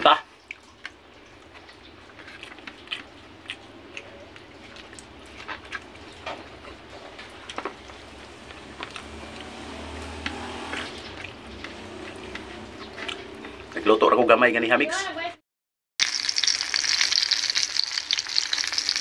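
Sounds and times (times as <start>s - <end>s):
man chewing: 0.3s - 13.8s.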